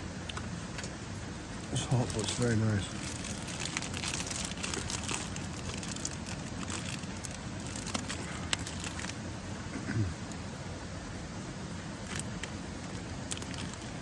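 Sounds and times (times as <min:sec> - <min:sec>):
light clicks and crinkles: 0:00.2 - 0:09.2, 0:12.0 - 0:14.0.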